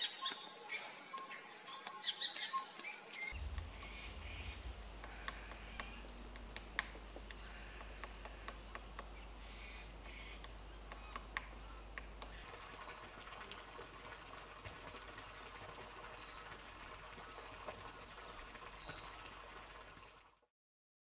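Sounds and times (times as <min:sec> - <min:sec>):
faint forest ambience: 0:00.0 - 0:20.4
sharp taps: 0:03.4 - 0:09.3, 0:10.0 - 0:12.4.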